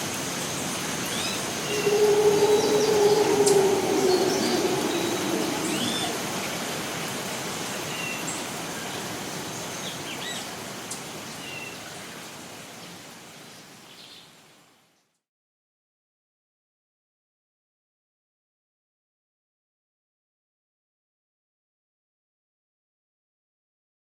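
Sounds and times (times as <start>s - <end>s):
hiss of rain or running water: 0.0s - 15.2s
low hum: 1.6s - 7.4s.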